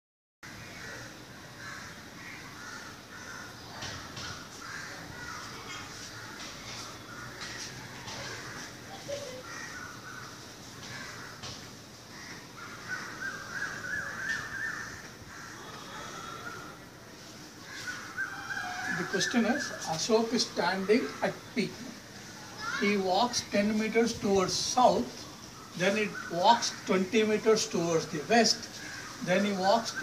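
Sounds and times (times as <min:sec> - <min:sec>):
birds calling: 0:00.4 - 0:30.0.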